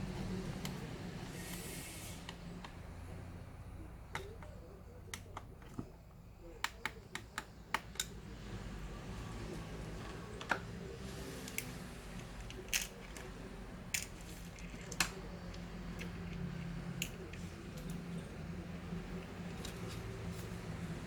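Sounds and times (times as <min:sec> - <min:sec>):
steady low hum: 0:00.0 - 0:21.0
small parts and tools clicking: 0:11.4 - 0:20.7.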